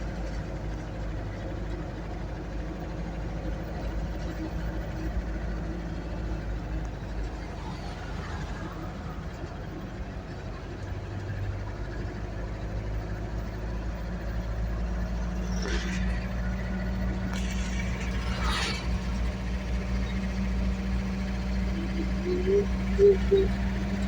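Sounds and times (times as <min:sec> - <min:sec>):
vehicle engine running: 0:00.0 - 0:24.0
brief hissing: 0:15.3 - 0:19.6.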